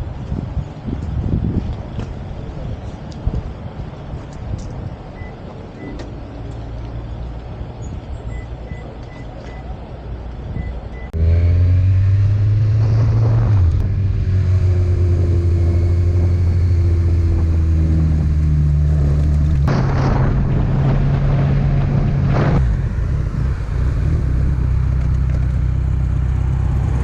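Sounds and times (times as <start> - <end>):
wind noise: 0.0 - 8.4, 10.2 - 27.0
motorcycle engine drone: 11.1 - 27.0.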